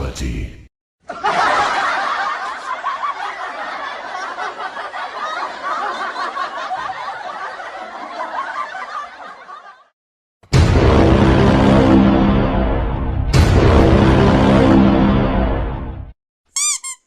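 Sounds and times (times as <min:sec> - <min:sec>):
crowd laughing: 0:01.0 - 0:10.0.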